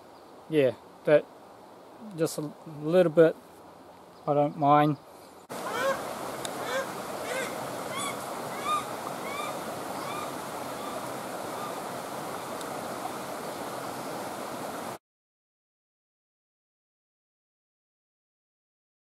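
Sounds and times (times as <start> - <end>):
bird calling: 4.2 - 14.2
stream rushing: 5.4 - 15.0.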